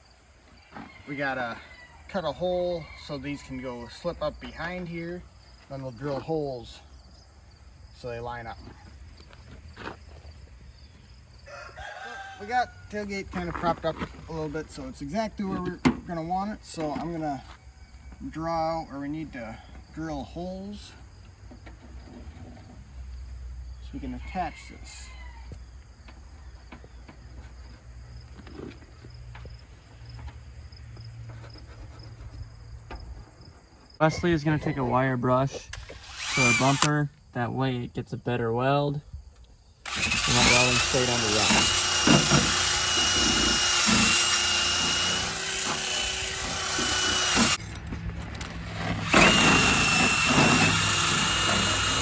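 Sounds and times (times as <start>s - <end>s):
crickets chirping: 0.0s - 40.8s
wire brush wheel scouring metal: 35.9s - 37.0s, 39.9s - 47.7s, 48.6s - 52.0s.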